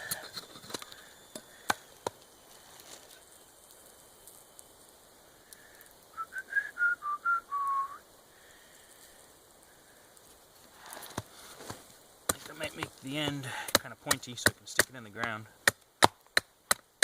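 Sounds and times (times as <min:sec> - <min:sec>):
person whistling a tune: 0:06.2 - 0:08.0.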